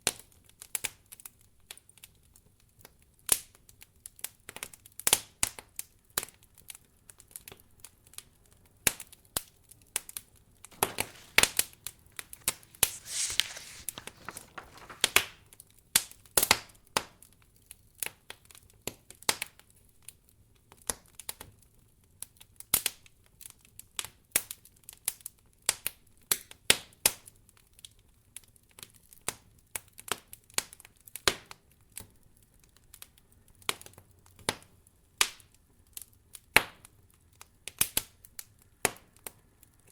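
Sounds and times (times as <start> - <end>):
wood fire crackling: 10.7 - 15.5.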